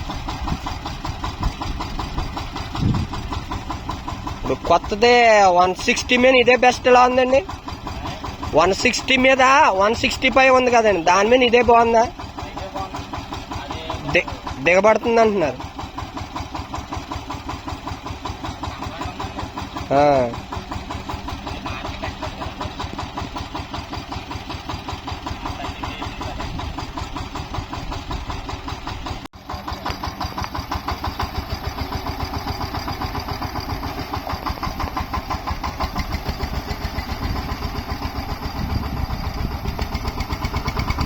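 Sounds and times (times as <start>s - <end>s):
tractor engine pulsing: 0.0s - 41.0s.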